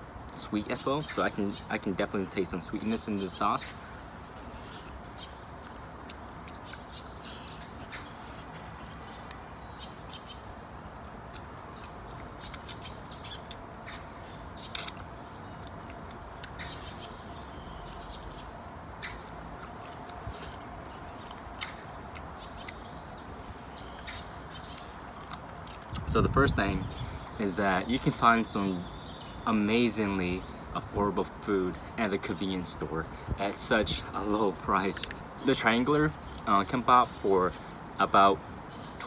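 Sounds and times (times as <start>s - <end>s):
steady background noise: 0.0s - 39.0s
chewing and crunching: 2.9s - 26.2s
wet mouth clicks: 10.0s - 13.7s, 14.6s - 26.1s.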